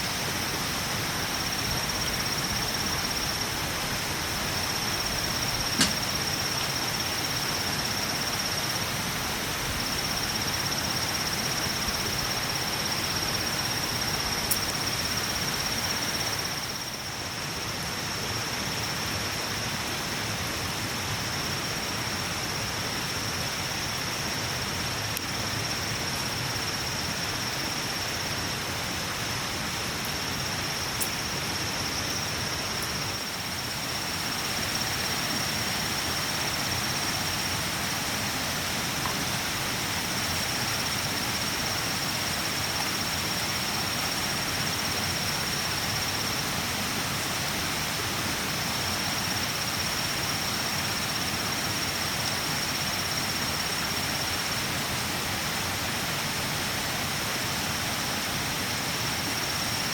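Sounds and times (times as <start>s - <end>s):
outdoor hiss: 0.0s - 59.9s
brief click: 5.8s - 6.1s.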